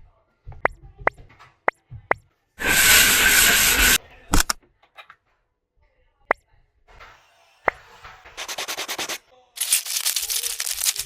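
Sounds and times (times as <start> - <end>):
loud hiss: 2.6 - 4.6.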